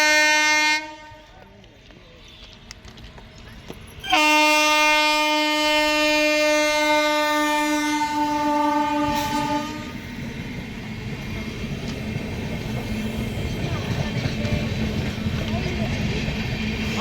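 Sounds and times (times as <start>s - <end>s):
train horn blast: 0.0s - 1.4s, 4.0s - 10.1s
train rumbling on tracks: 0.0s - 17.0s.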